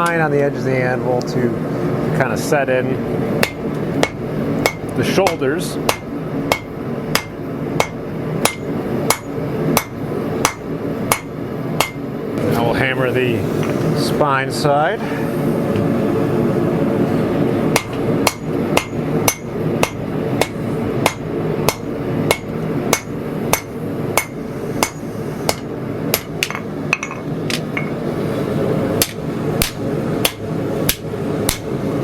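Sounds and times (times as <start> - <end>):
steady background roar: 0.0 - 32.0
hammer striking steel on anvil: 3.4 - 12.0, 17.7 - 28.0, 29.0 - 31.7.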